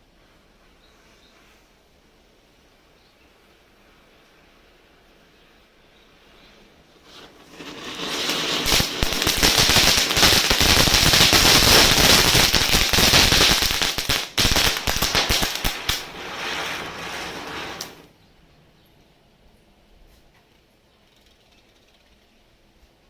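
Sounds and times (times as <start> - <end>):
firecrackers popping: 7.0 - 18.1.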